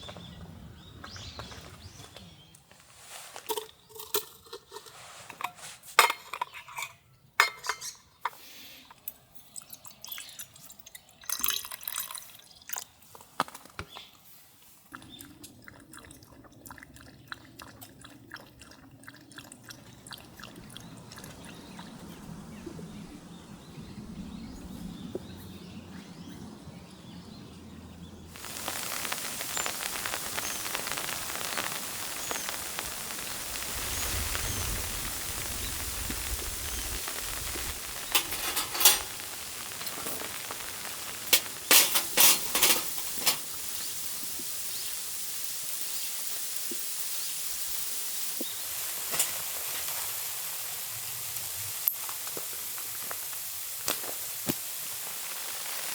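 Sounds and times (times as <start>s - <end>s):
clicks and clinks of utensils: 3.4s - 9.8s, 38.1s - 39.2s, 41.3s - 43.5s
liquid being poured: 9.5s - 12.8s, 14.8s - 21.9s
loud even hiss: 28.3s - 55.9s.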